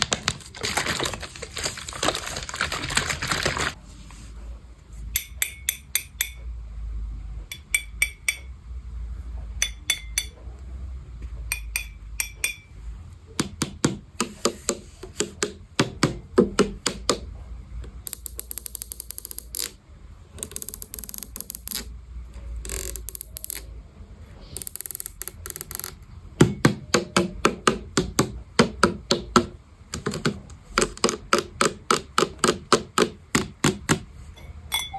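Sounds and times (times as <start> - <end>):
scratchy rustling: 0.0 - 4.4
tapping and clicking on hard objects: 13.4 - 17.3, 24.6 - 34.1.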